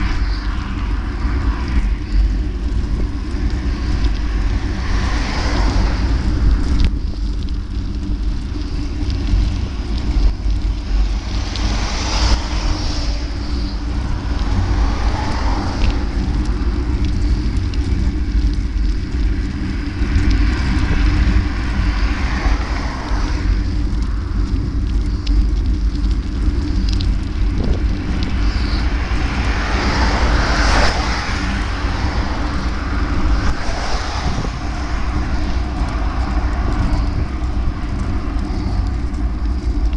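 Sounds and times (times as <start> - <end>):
passing traffic: 0.0 - 39.9
road noise: 0.0 - 39.9
wind buffeting microphone: 0.0 - 39.9.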